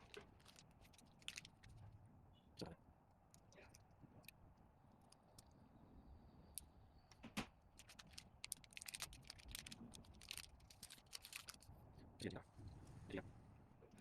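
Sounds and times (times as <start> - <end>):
plastic packaging crackling: 0.0 - 1.8, 7.8 - 11.7.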